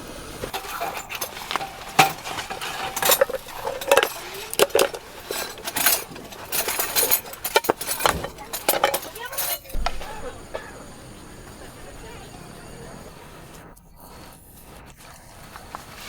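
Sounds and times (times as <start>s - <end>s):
metal utensils clinking: 0.3s - 10.7s.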